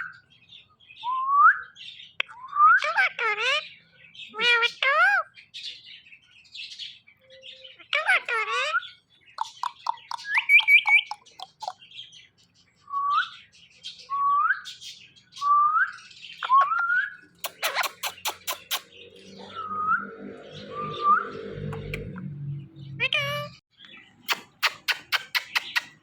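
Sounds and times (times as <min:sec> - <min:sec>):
parakeet chirping and whistling: 0:07.8 - 0:11.8, 0:13.0 - 0:22.3, 0:24.2 - 0:26.0
sharp clicks: 0:17.4 - 0:18.9, 0:24.3 - 0:26.0.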